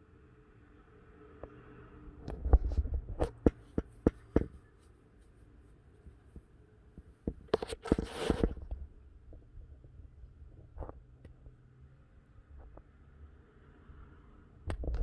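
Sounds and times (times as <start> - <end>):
rustling close to microphone: 2.2 - 11.6.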